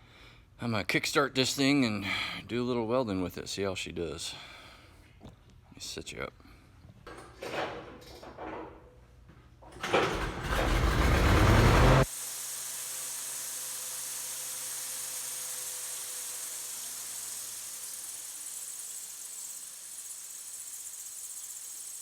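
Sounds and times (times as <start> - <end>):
welder engine starting up: 9.7 - 22.0.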